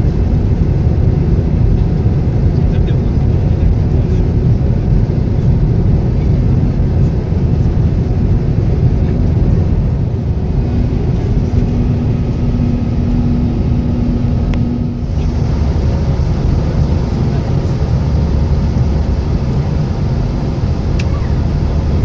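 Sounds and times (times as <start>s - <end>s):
vehicle rumble from inside: 0.0s - 22.0s
faint steady hum: 9.0s - 22.0s.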